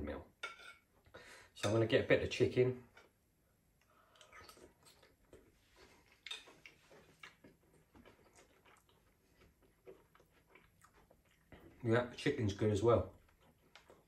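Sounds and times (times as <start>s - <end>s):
faint chewing with wet mouth clicks: 3.8s - 11.8s, 13.0s - 14.0s.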